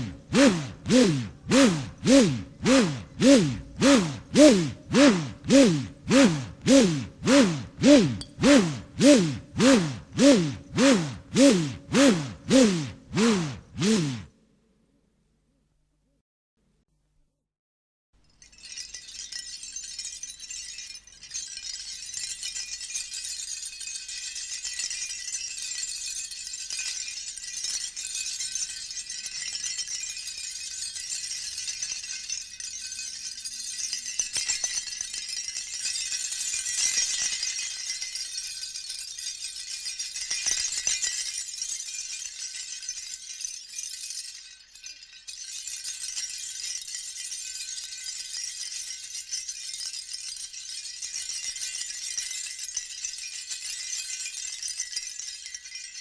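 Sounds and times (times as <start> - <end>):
rattle shaken: 0.0 - 14.3, 18.2 - 56.0.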